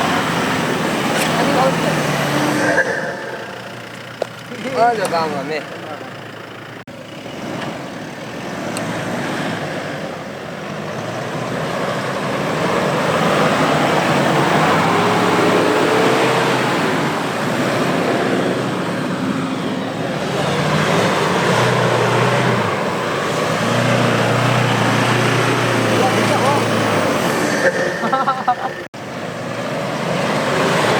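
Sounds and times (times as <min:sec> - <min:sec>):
suv engine under load: 0:00.0 - 0:30.9
broad rushing noise: 0:02.2 - 0:04.2.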